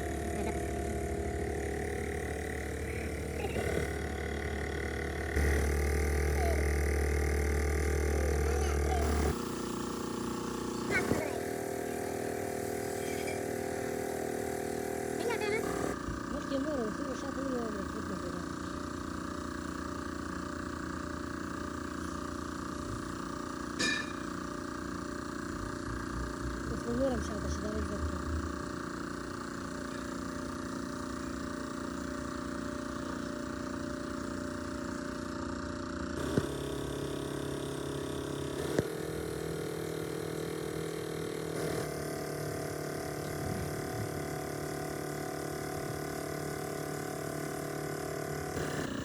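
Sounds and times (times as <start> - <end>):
steady machine hum: 0.0 - 49.0
sharp metal clink: 23.8 - 24.3.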